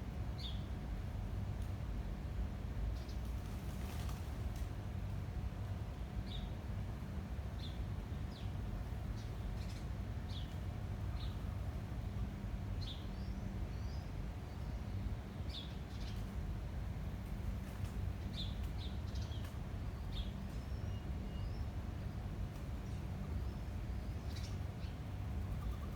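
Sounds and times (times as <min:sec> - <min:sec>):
low rumble of wind: 0:00.0 - 0:25.9
garden birds chirping: 0:07.5 - 0:25.9.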